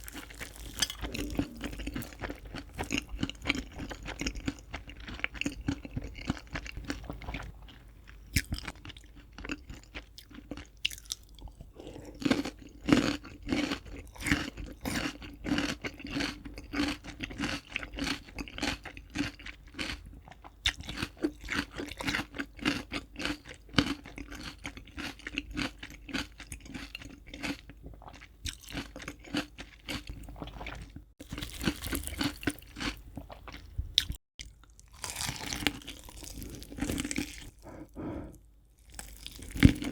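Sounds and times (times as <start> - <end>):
chewing crispy fried chicken: 0.0 - 39.9.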